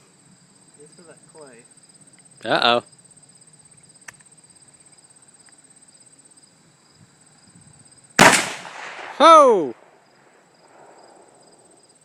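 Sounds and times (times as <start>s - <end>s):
crickets chirping: 0.0s - 12.0s
rifle shot with echo: 8.2s - 10.0s.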